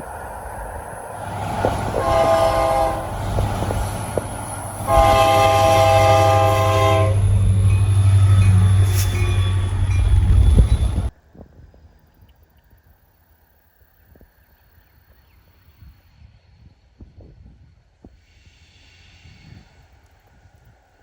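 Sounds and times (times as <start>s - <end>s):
locomotive engine rumble: 0.0s - 11.2s
locomotive horn chord: 2.0s - 3.2s, 4.8s - 9.9s.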